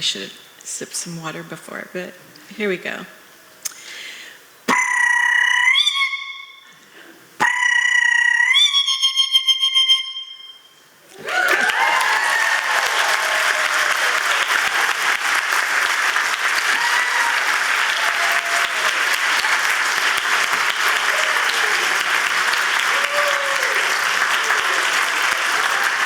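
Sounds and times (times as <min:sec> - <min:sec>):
person imitating bird call: 0:04.7 - 0:06.6, 0:07.4 - 0:09.6
audience applauding: 0:11.1 - 0:26.0
audience cheering: 0:11.1 - 0:26.0.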